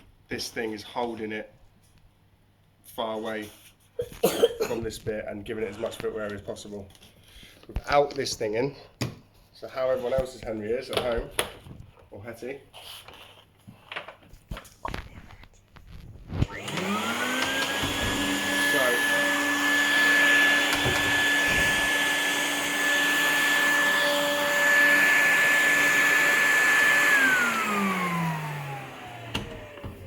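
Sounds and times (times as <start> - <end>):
vacuum cleaner motor whine: 16.3 - 30.0.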